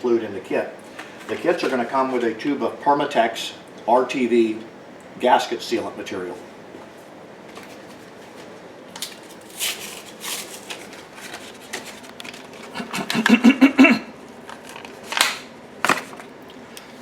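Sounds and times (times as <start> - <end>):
handling rustles and clicks: 7.5 - 13.2, 14.4 - 16.9.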